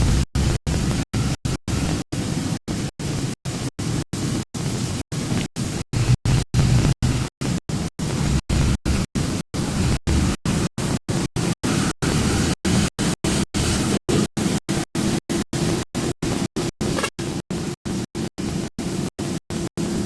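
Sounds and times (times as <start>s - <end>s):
chopped-up rushing noise: 4.9s - 11.5s.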